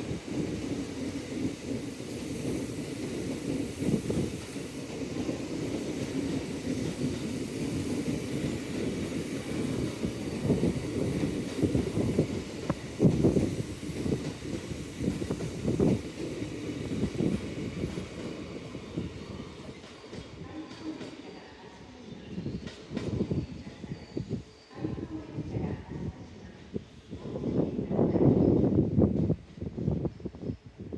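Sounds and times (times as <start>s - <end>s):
electric train rail rumble: 0.0s - 30.9s.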